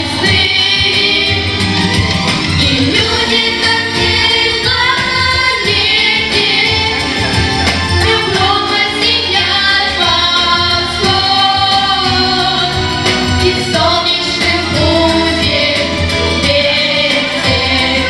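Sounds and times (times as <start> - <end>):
instrumental accompaniment: 0.0 - 18.0
vocal group singing: 0.0 - 18.0.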